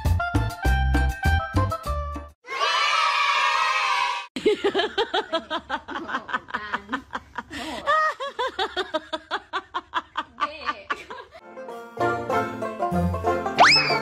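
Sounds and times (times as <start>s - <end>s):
woman giggling: 4.4s - 11.4s.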